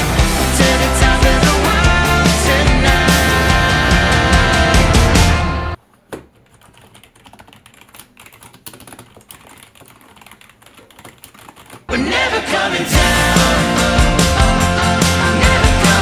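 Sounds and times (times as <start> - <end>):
background music: 0.0 - 5.8, 11.9 - 16.0
keyboard typing clicks: 6.4 - 11.9.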